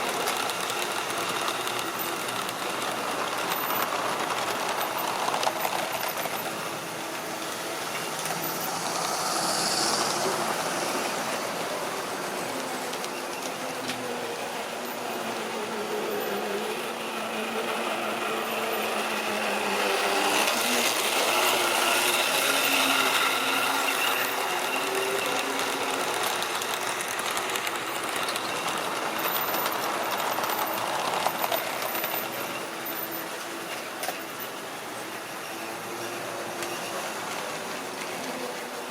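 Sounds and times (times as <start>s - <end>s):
model train wheels rumbling on rails: 0.0s - 38.9s
small electric motor whirring: 7.5s - 12.4s.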